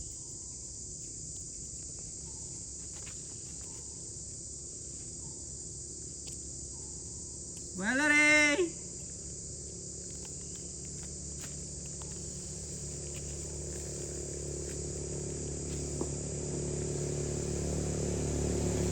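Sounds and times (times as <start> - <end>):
low engine rumble: 10.0 - 18.9.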